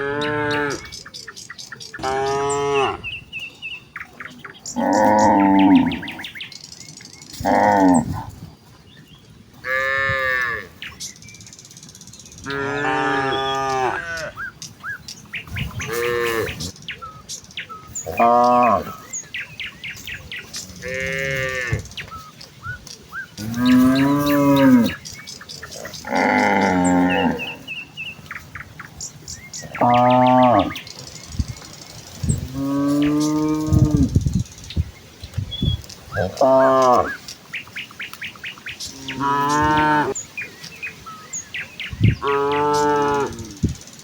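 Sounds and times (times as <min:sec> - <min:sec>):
cows mooing: 0:00.0 - 0:00.9, 0:02.0 - 0:03.1, 0:04.7 - 0:06.3, 0:07.3 - 0:08.3, 0:09.6 - 0:10.8, 0:12.4 - 0:14.4, 0:15.6 - 0:16.7, 0:18.0 - 0:19.1, 0:20.6 - 0:21.9, 0:23.4 - 0:27.8, 0:29.7 - 0:30.9, 0:32.3 - 0:34.2, 0:36.2 - 0:37.2, 0:38.8 - 0:40.2, 0:42.1 - 0:43.6.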